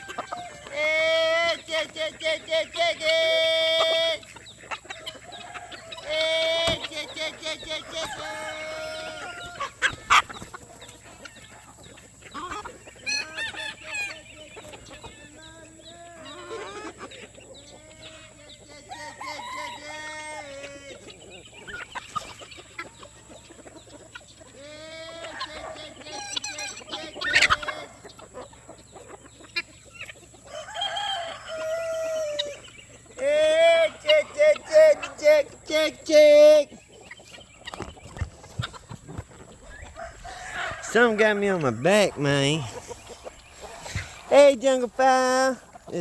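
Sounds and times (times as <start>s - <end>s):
rooster crowing: 0.0s - 0.8s, 5.2s - 6.9s, 7.8s - 9.9s, 18.9s - 20.9s, 30.4s - 32.7s, 39.7s - 42.0s
chickens clucking: 0.0s - 46.0s.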